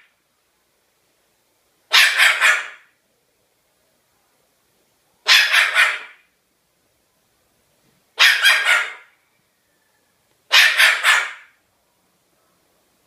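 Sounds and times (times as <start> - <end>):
cockatoo imitating dog barks: 1.9 - 2.9, 5.2 - 6.2, 8.2 - 9.1, 10.5 - 11.6.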